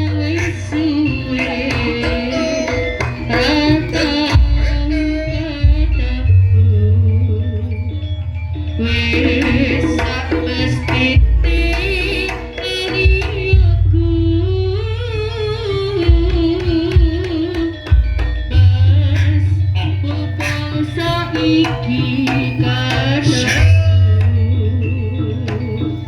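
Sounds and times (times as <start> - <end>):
hand drums busy rhythm: 0.0 - 7.5, 8.6 - 26.0
person singing with vibrato: 0.0 - 7.7, 8.8 - 17.9
heavy low bass: 3.0 - 12.4, 13.0 - 20.0.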